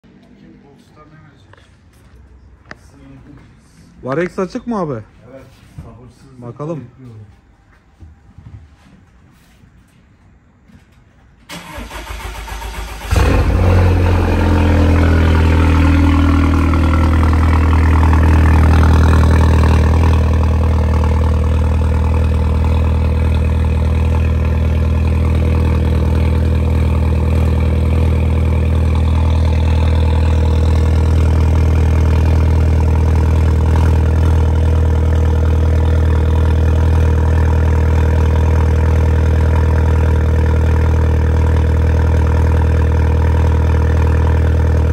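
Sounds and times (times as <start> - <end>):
car starter cranking: 11.5 - 13.7
car engine idling: 11.5 - 44.9.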